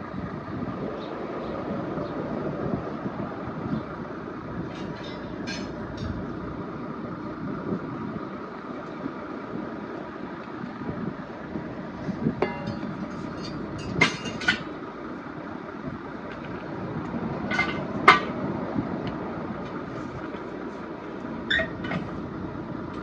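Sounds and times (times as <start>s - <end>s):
metal tools clinking: 4.8s - 5.8s, 12.4s - 14.7s.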